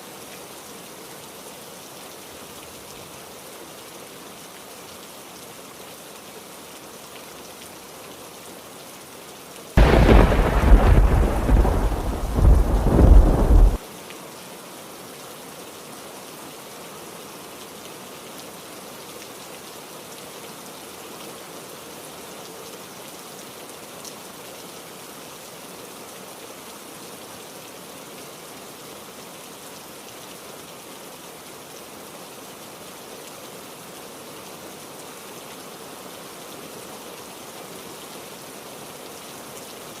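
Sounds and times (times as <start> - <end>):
heavy rain: 0.0 - 40.0
thunder clap rumbling: 9.8 - 13.8.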